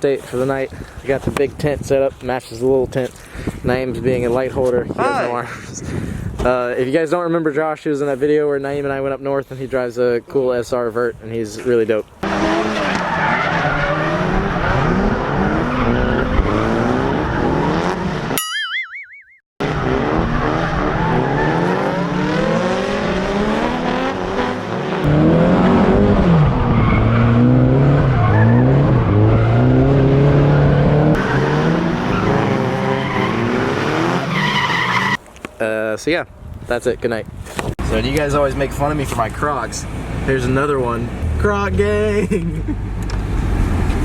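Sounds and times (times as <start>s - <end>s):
drift car engines revving: 12.2s - 18.4s, 19.6s - 35.2s
fast-wobbling tone: 18.4s - 19.4s
tyres squealing: 31.2s - 35.2s.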